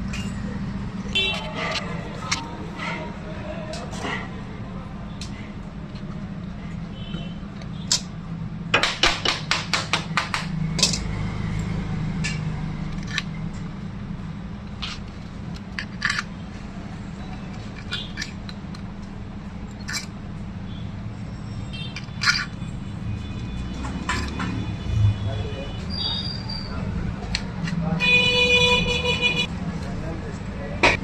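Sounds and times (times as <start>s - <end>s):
metal tools tapping on motor casing: 10.2s - 11.1s, 14.7s - 16.4s, 17.2s - 19.1s, 21.9s - 22.7s, 23.8s - 24.6s.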